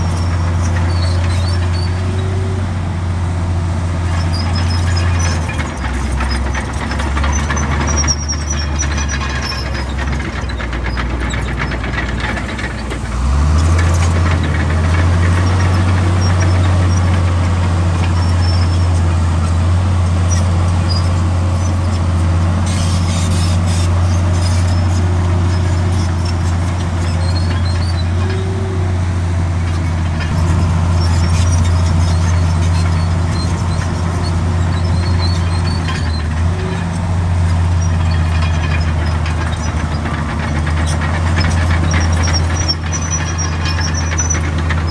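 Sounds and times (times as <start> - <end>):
bulldozer diesel engine under load: 0.0 - 44.9.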